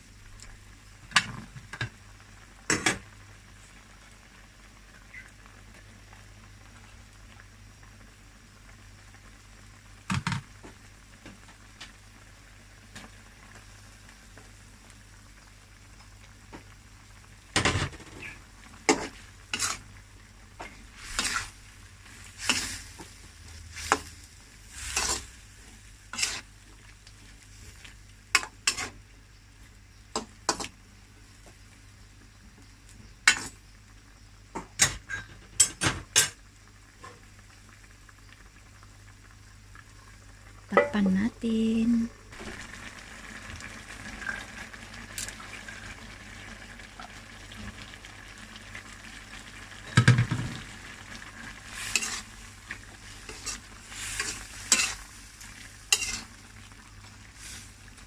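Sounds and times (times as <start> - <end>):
faint food sizzling: 0.0 - 58.0
utensil scraping in a pan: 17.9 - 19.9, 20.6 - 26.6, 27.5 - 29.0, 30.2 - 30.8, 33.2 - 33.6, 51.4 - 56.4, 57.3 - 58.0.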